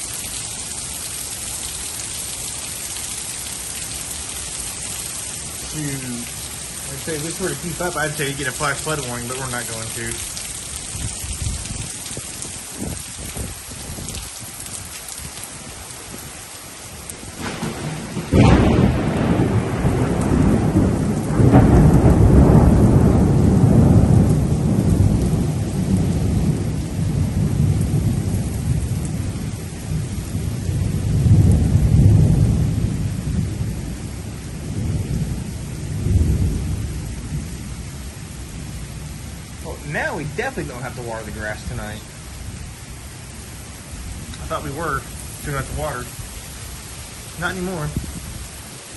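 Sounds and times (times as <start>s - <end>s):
heavy rain falling: 0.0s - 48.9s
thunder crack and rumble: 17.3s - 37.8s.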